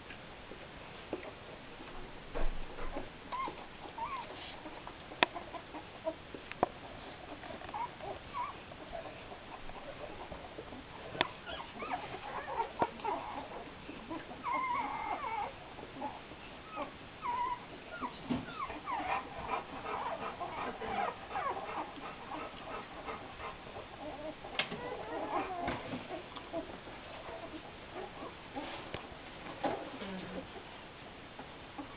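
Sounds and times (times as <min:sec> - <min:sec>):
puppies squeaking and whimpering: 0:02.8 - 0:06.2, 0:06.8 - 0:28.8.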